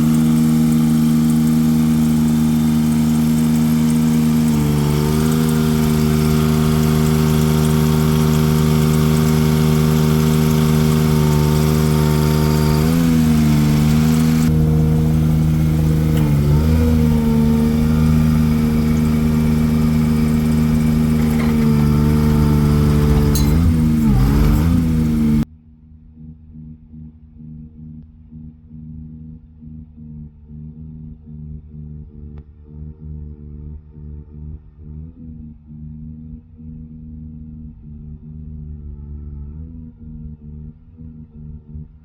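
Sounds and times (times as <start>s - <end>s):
truck engine running: 0.0s - 25.4s.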